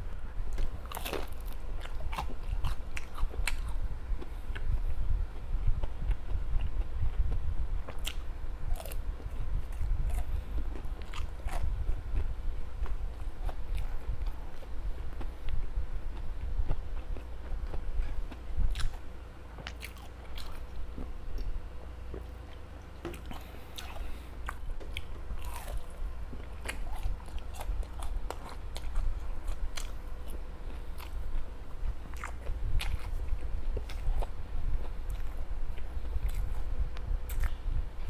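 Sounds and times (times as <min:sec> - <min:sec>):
steady low rumble: 0:00.0 - 0:38.0
close chewing and biting: 0:00.5 - 0:19.0, 0:19.6 - 0:21.5, 0:22.1 - 0:36.7, 0:37.3 - 0:37.7.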